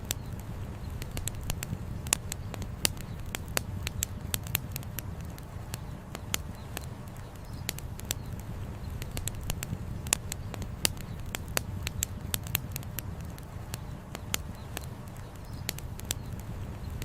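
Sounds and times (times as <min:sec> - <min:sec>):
campfire crackling and popping: 0:00.0 - 0:17.0
steady low rumble: 0:00.0 - 0:17.0.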